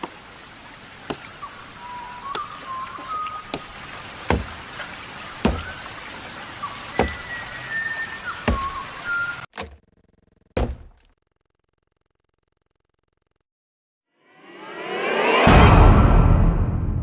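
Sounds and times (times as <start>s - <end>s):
birds whistling: 1.2s - 3.8s, 5.3s - 9.5s
axe chopping tree trunk: 3.5s - 4.6s, 5.4s - 5.8s, 6.9s - 7.2s, 8.4s - 8.8s, 10.6s - 11.1s.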